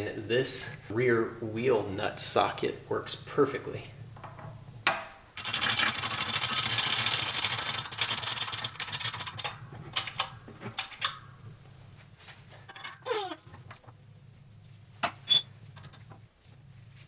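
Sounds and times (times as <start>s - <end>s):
metallic clicks and knocks: 8.6s - 11.2s
hydraulic press rasping: 12.9s - 13.4s.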